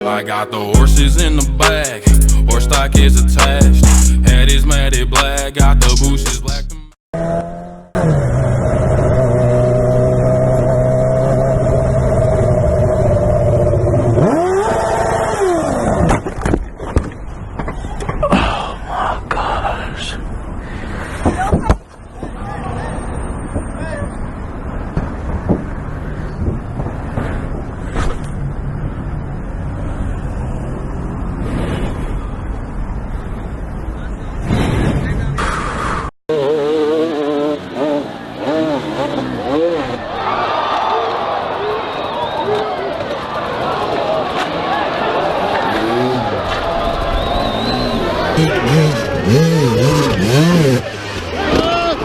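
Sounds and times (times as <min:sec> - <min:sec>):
vehicle engine running: 0:00.8 - 0:07.0, 0:48.3 - 0:51.6
motorcycle engine revving: 0:00.8 - 0:15.7, 0:36.3 - 0:40.2, 0:45.6 - 0:52.0.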